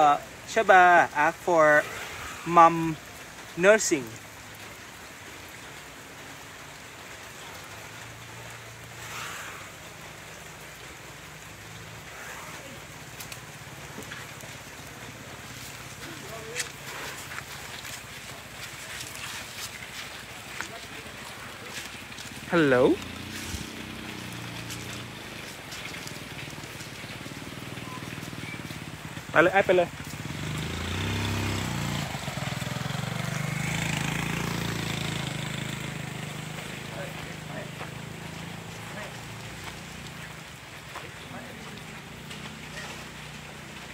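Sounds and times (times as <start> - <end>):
steady rain: 0.0 - 43.9
drops ticking: 12.9 - 33.0.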